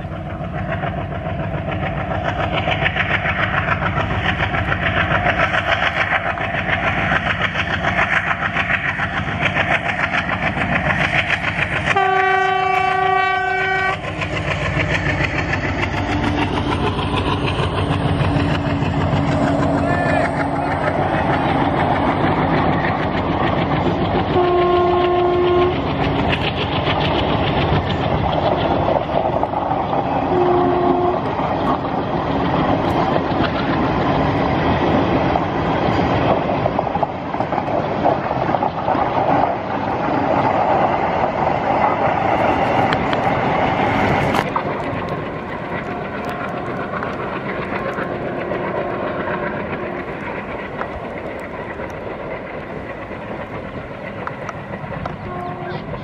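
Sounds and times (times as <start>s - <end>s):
train rumble and wheel clatter: 0.0s - 56.0s
locomotive horn blast: 11.9s - 14.0s, 24.4s - 25.8s, 30.3s - 31.3s, 55.3s - 55.9s.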